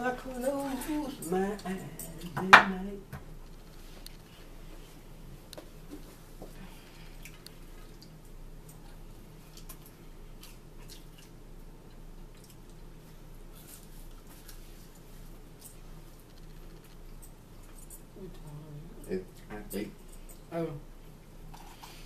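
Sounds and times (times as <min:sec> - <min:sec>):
steady low hum: 0:00.0 - 0:22.0
wet chewing and smacking: 0:06.8 - 0:18.1.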